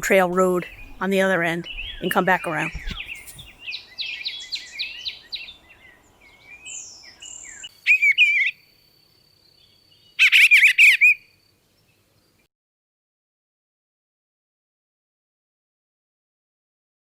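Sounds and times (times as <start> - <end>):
loud warbled bird phrases: 0.0 - 8.5, 10.2 - 11.2
songbirds chirping: 0.0 - 12.5.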